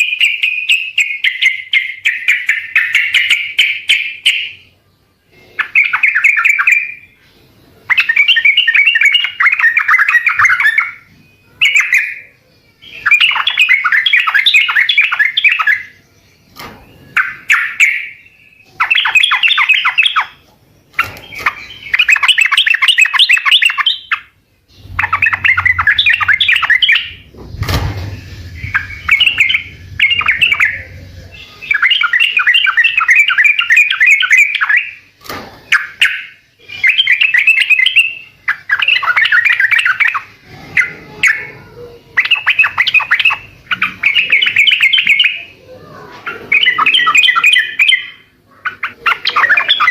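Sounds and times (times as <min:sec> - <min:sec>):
bulbul singing: 0:00.0 - 0:49.9
thump with low hum: 0:24.8 - 0:31.3.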